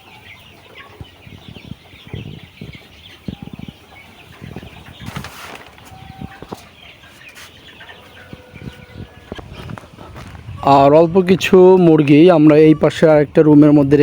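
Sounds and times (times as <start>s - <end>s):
chickens clucking and cheeping: 0.0s - 14.0s
chickens scuffling: 0.0s - 14.0s
wings flapping: 4.6s - 6.7s.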